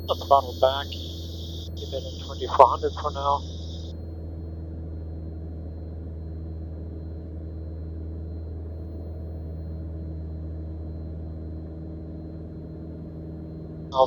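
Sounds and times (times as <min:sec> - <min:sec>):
propeller plane engine droning: 0:00.0 - 0:14.0.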